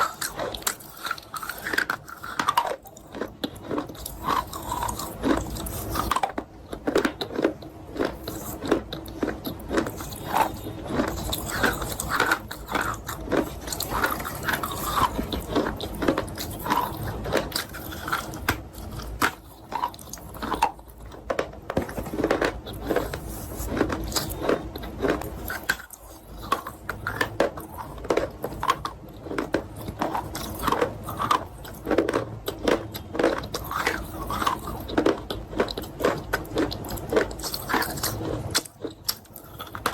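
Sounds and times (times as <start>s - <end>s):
crunchy chewing: 0.0s - 39.9s.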